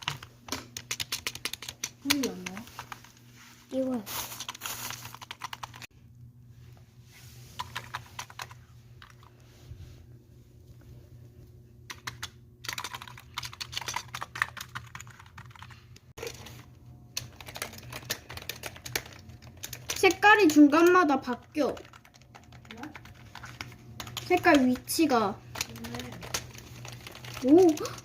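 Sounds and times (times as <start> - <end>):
computer keyboard typing: 0.0 - 3.1, 4.4 - 5.9, 7.6 - 9.3, 11.9 - 16.4, 17.1 - 28.0.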